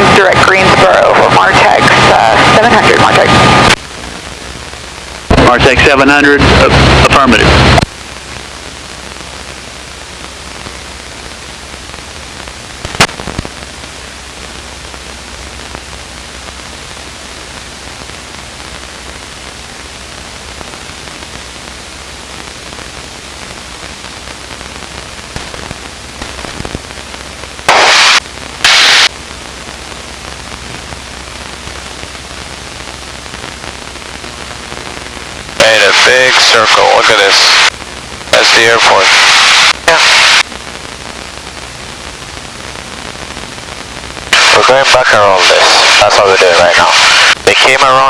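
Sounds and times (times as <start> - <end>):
loud static bursts: 0.0 - 48.0
radio static hiss: 0.0 - 48.0
sharp crack: 27.7 - 29.1.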